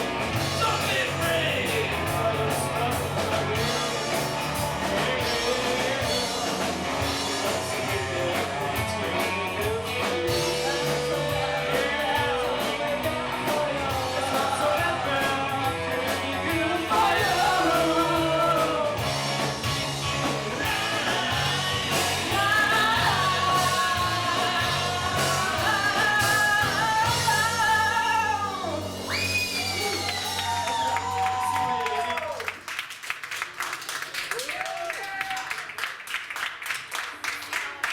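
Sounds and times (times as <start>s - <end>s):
steady drum beat: 0.0s - 31.2s
guitar: 0.0s - 32.1s
person singing: 0.5s - 19.5s, 20.2s - 30.7s.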